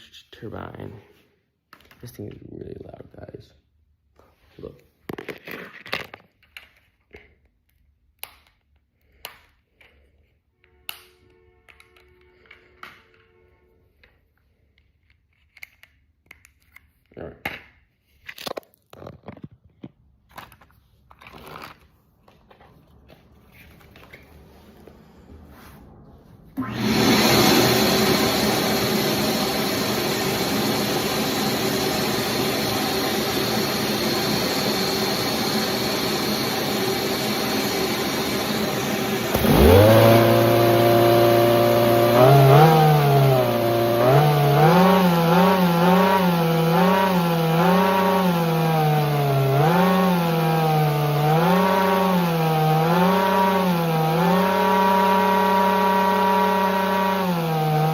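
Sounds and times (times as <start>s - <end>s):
engine revving hum: 24.6s - 57.9s
model engine whirring: 26.6s - 57.9s.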